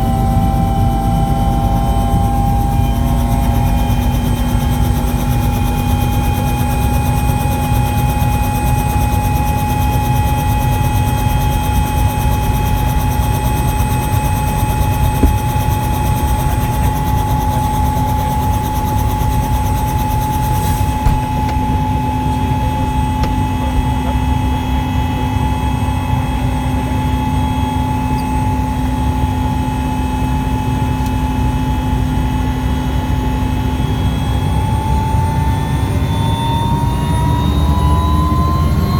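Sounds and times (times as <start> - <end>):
helicopter rotors rumbling: 0.0 - 27.3
turbine whine: 0.0 - 38.9.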